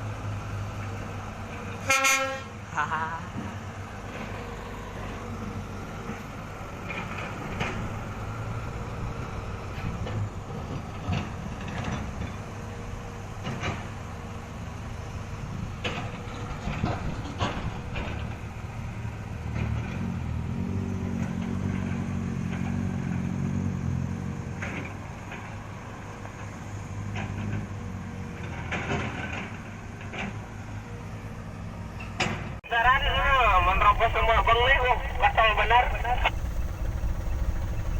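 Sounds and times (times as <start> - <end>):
truck diesel engine running: 32.6 - 37.9.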